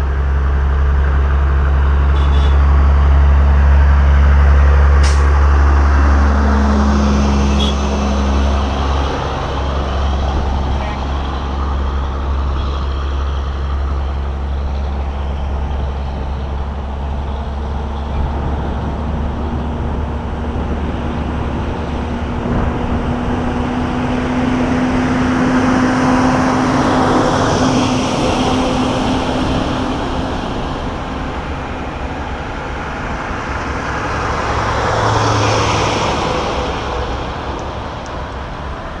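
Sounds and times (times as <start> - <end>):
trucks driving past: 0.0 - 39.0.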